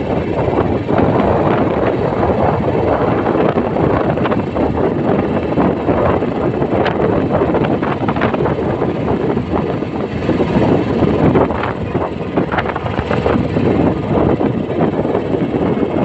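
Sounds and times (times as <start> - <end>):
motorcycle engine and exhaust: 0.0 - 16.0.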